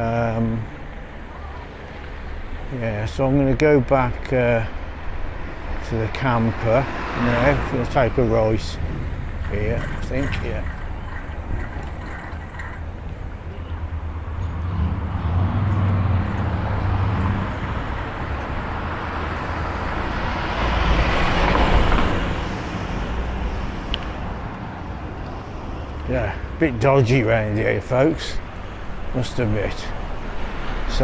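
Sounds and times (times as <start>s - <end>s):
vehicle passing: 0.0s - 31.0s
steady low rumble: 2.4s - 20.4s.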